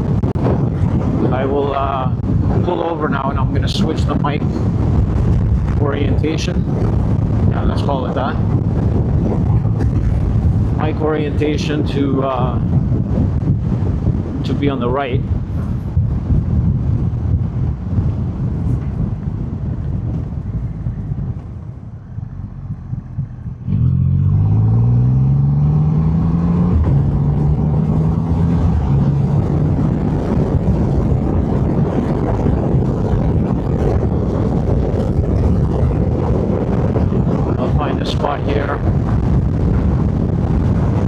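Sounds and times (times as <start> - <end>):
wind rushing: 0.0 - 41.0
motorcycle engine accelerating: 6.6 - 11.0, 15.4 - 41.0.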